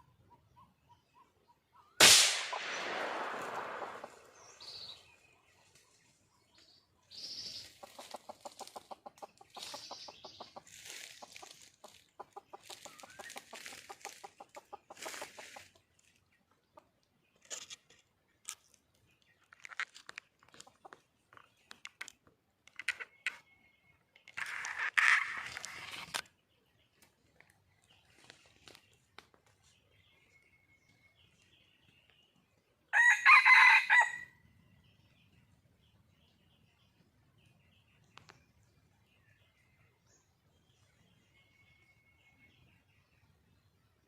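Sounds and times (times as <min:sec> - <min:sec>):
hen clucking: 0:07.6 - 0:15.9.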